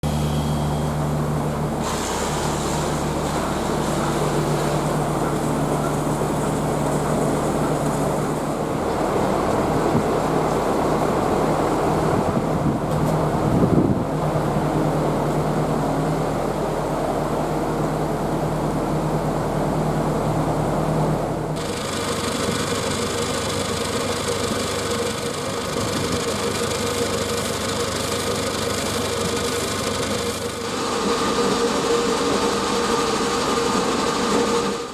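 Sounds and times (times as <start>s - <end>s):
rushing noise: 0.0s - 15.0s
engine running: 0.0s - 34.9s.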